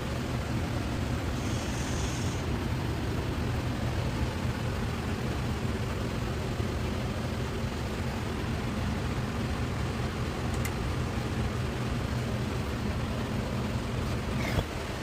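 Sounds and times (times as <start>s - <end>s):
low mechanical hum: 0.0s - 15.0s
hiss: 1.1s - 2.9s.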